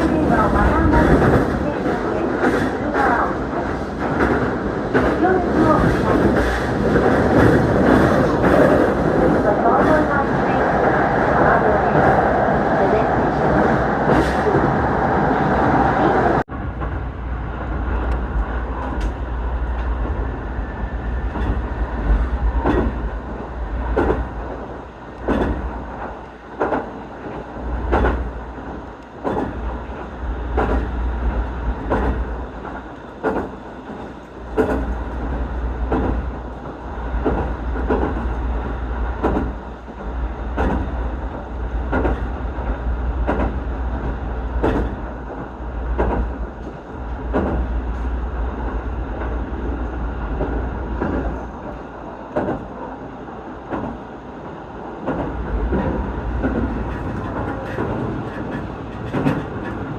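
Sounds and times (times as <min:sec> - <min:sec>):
train car rumble: 0:00.0 - 0:59.9
wheels clacking over rail joints: 0:25.2 - 0:38.3, 0:41.8 - 0:48.1, 0:55.0 - 0:59.9.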